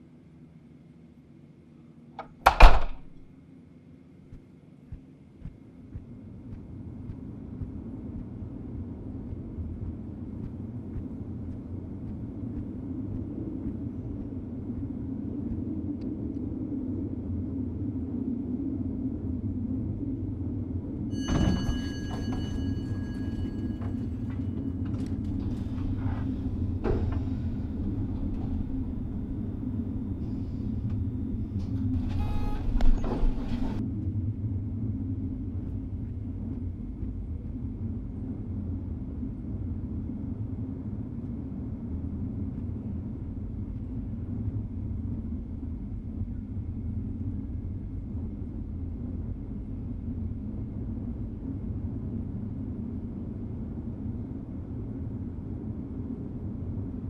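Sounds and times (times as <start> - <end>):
low rumbling drone: 5.4 - 57.0
sharp ringing sound: 21.1 - 24.3.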